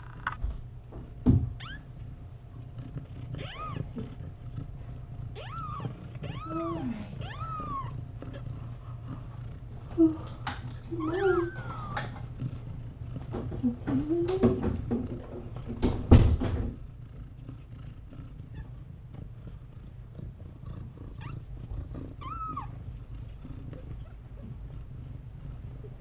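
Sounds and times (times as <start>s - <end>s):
cat purring: 0.0s - 26.0s
kitten mews: 3.4s - 3.9s, 5.4s - 8.4s.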